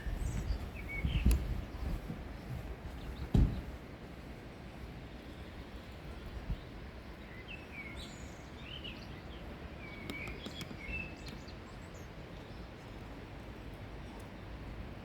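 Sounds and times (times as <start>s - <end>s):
outdoor ambience: 0.0s - 15.0s
faint clicks: 10.0s - 11.5s.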